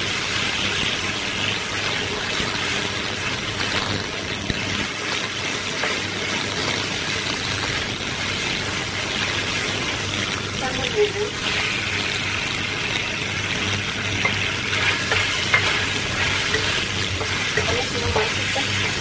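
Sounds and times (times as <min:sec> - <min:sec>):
shallots sizzling in oil: 0:00.0 - 0:19.0
spatula scraping a wok: 0:14.2 - 0:19.0.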